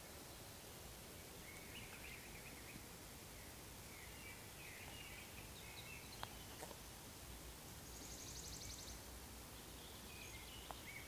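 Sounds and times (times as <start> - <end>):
forest birdsong: 0.0 - 11.0
steady hiss: 0.0 - 11.0.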